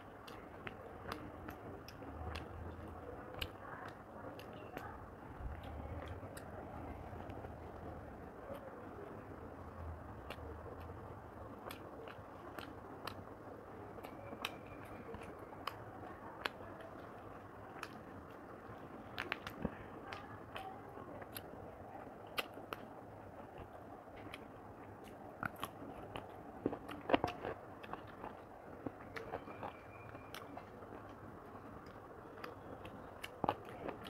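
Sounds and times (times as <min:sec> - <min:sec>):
person chewing with wet smacks: 0:00.0 - 0:34.0.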